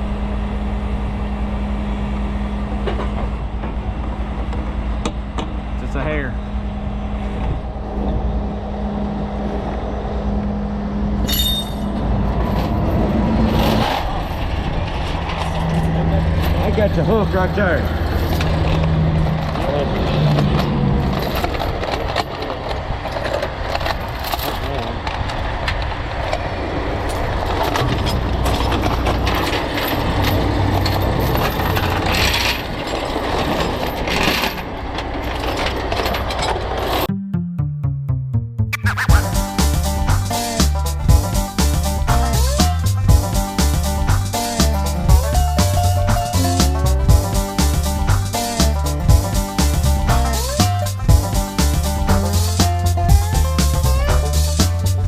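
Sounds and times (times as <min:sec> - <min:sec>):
diesel truck engine running: 0:00.0 - 0:55.0
metallic clinks and rattles: 0:11.3 - 0:12.0, 0:21.0 - 0:22.6.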